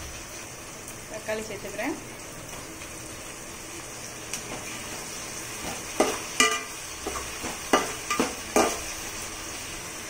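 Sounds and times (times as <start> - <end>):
vegetables sizzling in oil: 0.0 - 10.0
spatula knocking against a pot: 5.6 - 8.8.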